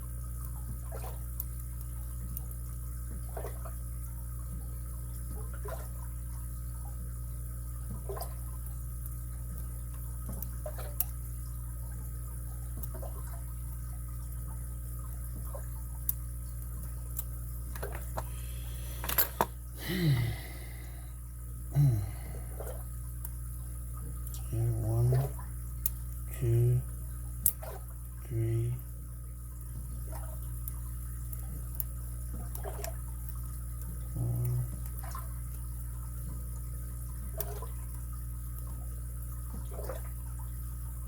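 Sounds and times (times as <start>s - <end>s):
low hum: 16.5s - 32.5s.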